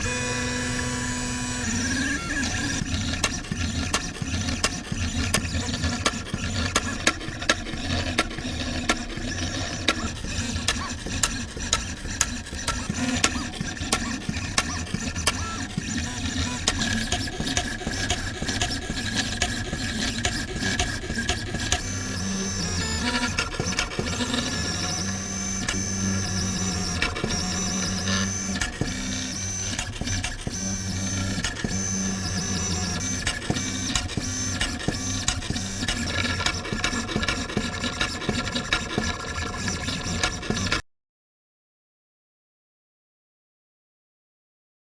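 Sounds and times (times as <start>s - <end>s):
motors whirring: 0.0s - 40.8s
printing machine clicks: 0.0s - 40.8s.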